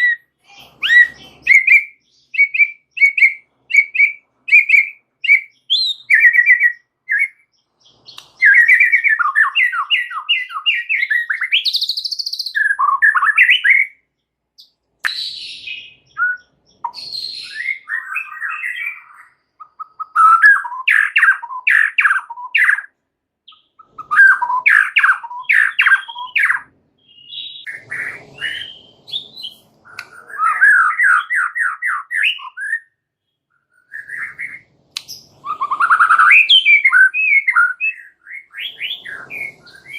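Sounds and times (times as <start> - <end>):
bird singing loudly: 0.0 - 14.0, 15.1 - 22.9, 23.5 - 39.9.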